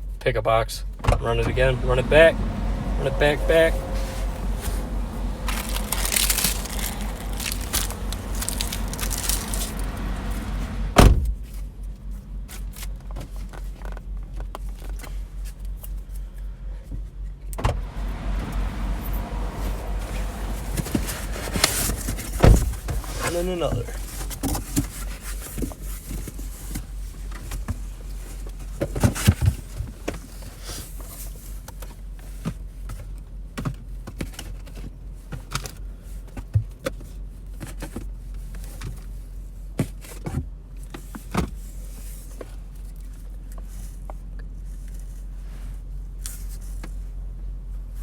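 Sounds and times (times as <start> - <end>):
steady low hum in car: 0.0 - 48.0
cards and packaging clicks and rustles: 5.4 - 10.4.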